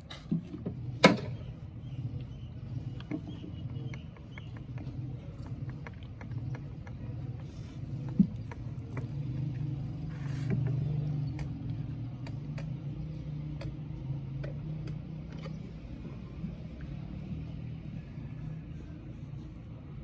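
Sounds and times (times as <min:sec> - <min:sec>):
hand tools clicking and tapping: 0:03.0 - 0:15.6.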